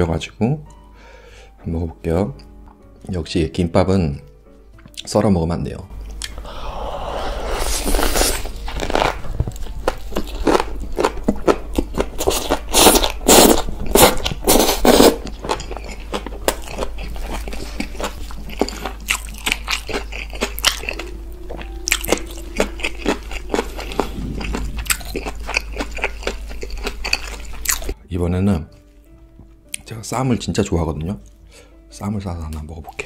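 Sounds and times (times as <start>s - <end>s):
wet crunchy chewing: 7.7s - 28.0s.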